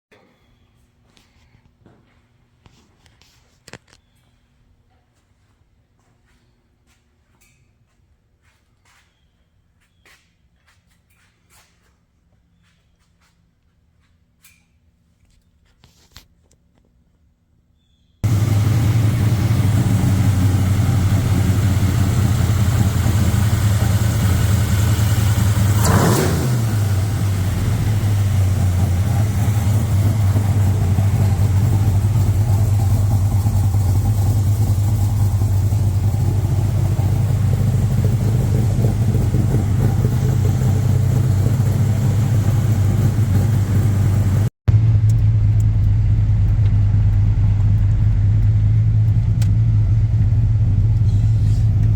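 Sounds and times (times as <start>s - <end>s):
truck engine idling and revving: 18.2s - 51.9s.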